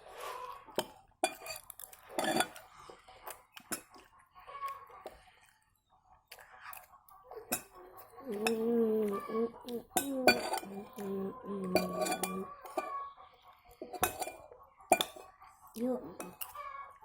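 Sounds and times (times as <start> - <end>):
person chewing: 0.0 - 5.6, 6.2 - 7.4
cutlery clinking on a dish: 0.8 - 1.6, 2.2 - 2.6, 7.5 - 7.8, 10.0 - 10.8, 11.7 - 12.9, 13.8 - 15.2.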